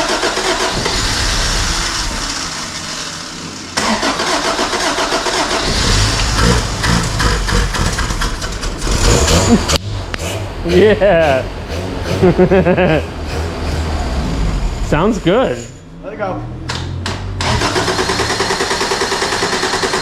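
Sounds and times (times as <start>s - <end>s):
starter cranking engine: 0.0s - 2.7s, 3.8s - 9.8s, 17.4s - 20.0s.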